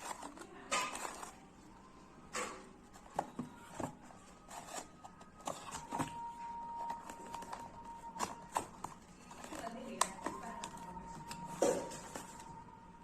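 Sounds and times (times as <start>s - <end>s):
crisp food clicks and crackles: 0.0s - 1.6s.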